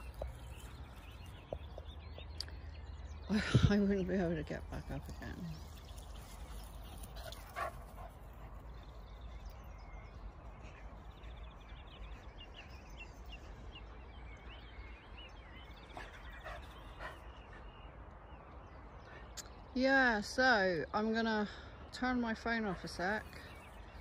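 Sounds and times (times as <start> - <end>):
faint high bird chirps: 5.5 - 19.8.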